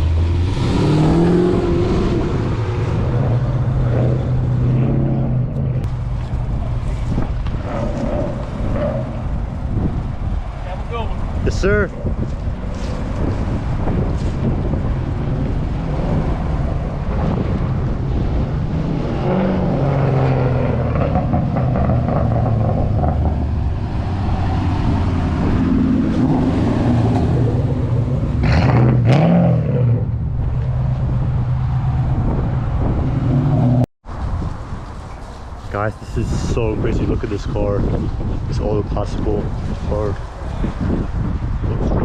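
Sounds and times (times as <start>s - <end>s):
car engine revving: 0.0s - 11.0s, 12.6s - 33.9s
car engines running: 0.0s - 42.0s.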